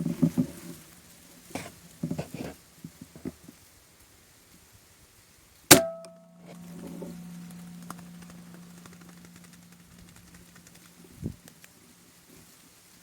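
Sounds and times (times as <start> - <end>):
air rifle shot: 5.7 - 6.1
steady low hum: 5.7 - 11.7.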